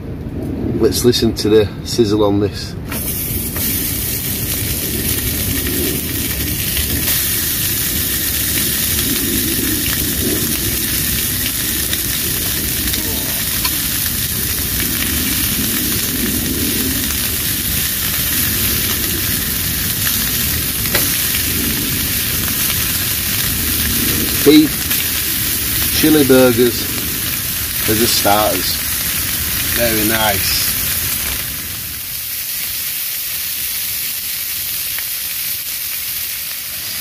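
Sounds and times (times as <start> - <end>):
burgers sizzling: 2.9 - 37.0.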